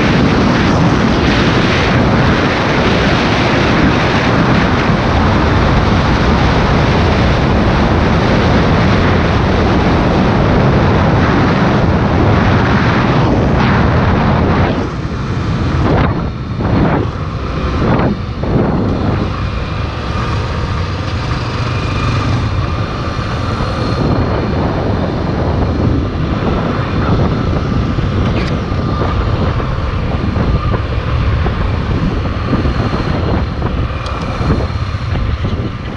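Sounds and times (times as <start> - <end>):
motorcycle engine running: 0.0 - 35.9
wind rush over microphone: 0.0 - 35.9.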